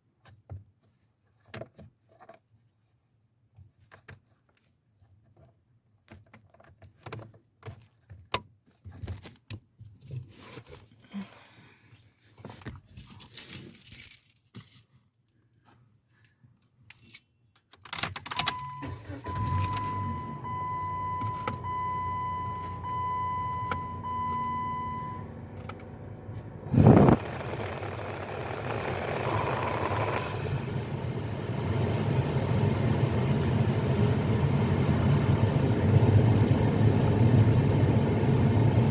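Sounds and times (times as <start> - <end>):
keys jangling: 12.9 - 14.9, 19.6 - 19.9
car engine cranking and running: 18.2 - 38.9
dashboard warning chime beeping: 18.4 - 25.4
low hum: 25.2 - 34.4.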